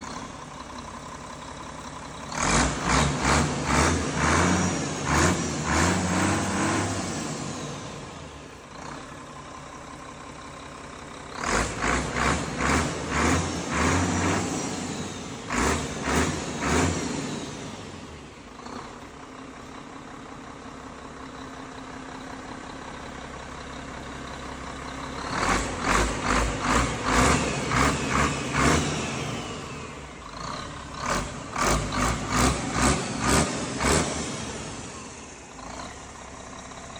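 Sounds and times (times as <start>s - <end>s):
engine running: 0.0s - 36.9s.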